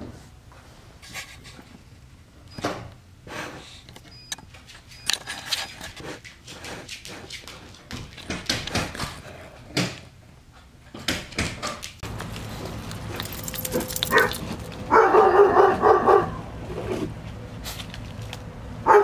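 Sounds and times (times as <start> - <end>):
dog claws clicking on hard floor: 11.0 - 14.8.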